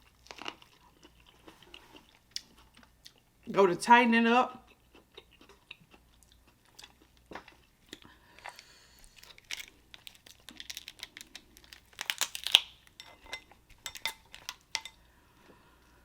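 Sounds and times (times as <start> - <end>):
shellfish shells cracking: 8.5 - 13.2.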